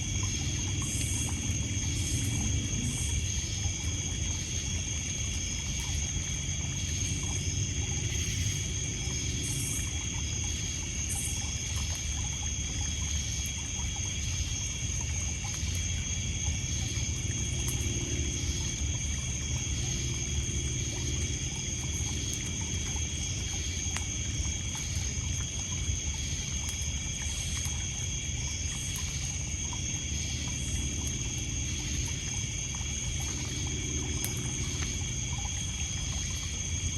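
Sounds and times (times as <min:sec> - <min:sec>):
crickets and insects chirping: 0:00.0 - 0:36.9
water lapping on pebbles: 0:00.0 - 0:36.9
campfire crackling: 0:15.4 - 0:36.9.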